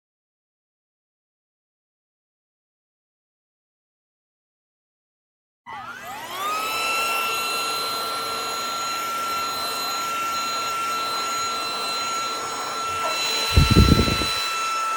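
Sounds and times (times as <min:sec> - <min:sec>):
handheld vacuum whining: 0:05.7 - 0:14.9.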